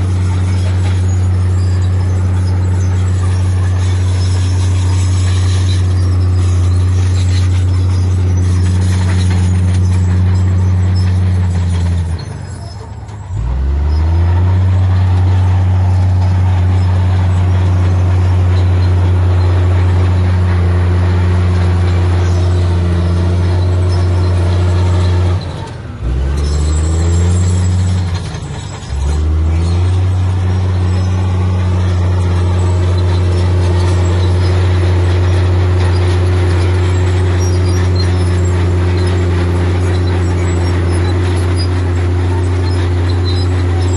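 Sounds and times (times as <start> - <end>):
heavy diesel engine revving: 0.0 - 43.9.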